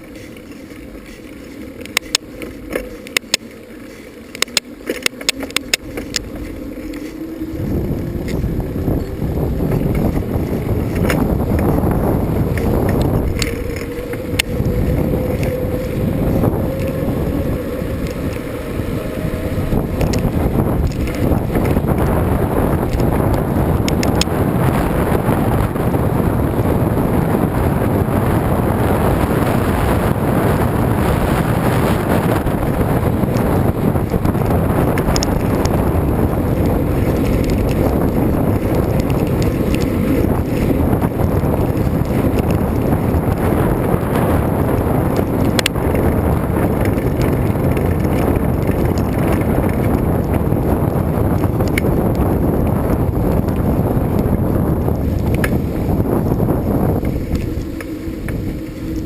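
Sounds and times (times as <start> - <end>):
wind buffeting microphone: 0.0 - 59.0
faint clicks: 0.1 - 7.2.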